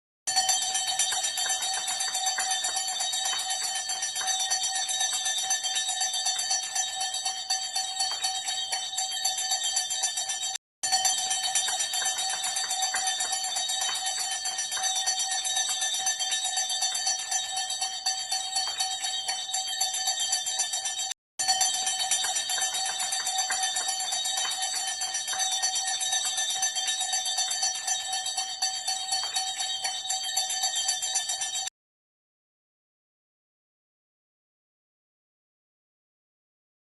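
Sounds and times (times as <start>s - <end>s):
hand bells ringing: 0.3s - 31.7s.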